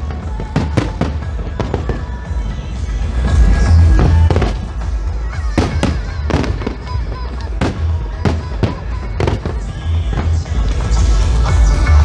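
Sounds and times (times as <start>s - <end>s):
fireworks bangs: 0.0s - 11.4s.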